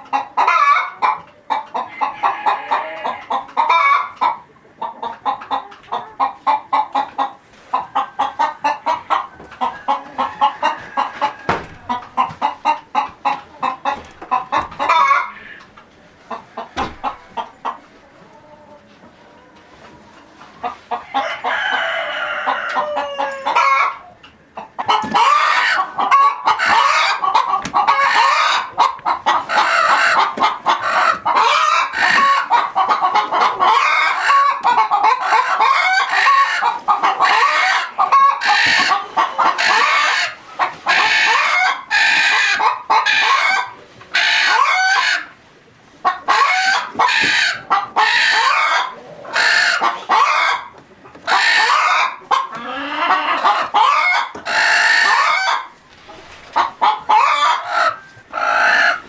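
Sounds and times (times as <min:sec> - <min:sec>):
chickens clucking and squawking: 0:00.0 - 0:59.0
rooster crowing: 0:21.1 - 0:23.9.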